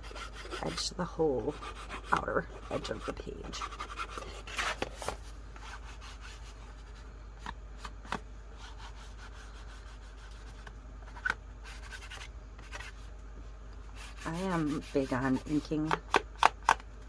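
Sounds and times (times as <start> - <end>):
ink pad scraping paper: 0.0 - 7.0, 13.9 - 16.0.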